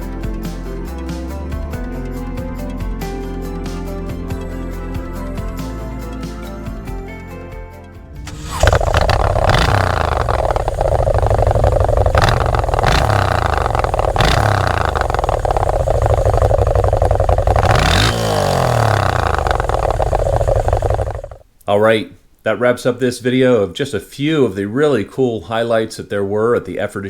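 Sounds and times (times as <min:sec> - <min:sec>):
motorcycle engine revving: 0:08.2 - 0:21.4.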